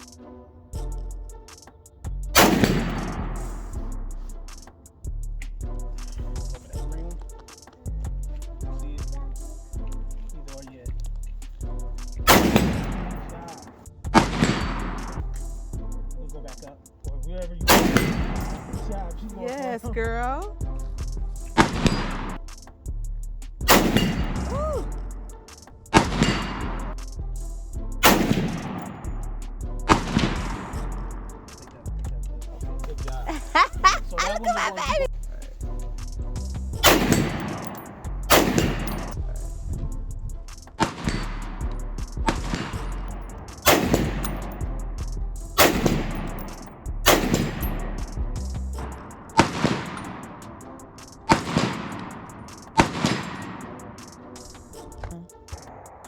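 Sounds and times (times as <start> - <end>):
gunshots with echo: 2.4 - 3.4, 12.3 - 15.2, 17.7 - 18.8, 23.7 - 24.5, 28.0 - 29.1, 36.8 - 39.2, 42.3 - 44.8, 45.6 - 48.1, 49.0 - 50.4, 51.2 - 54.0.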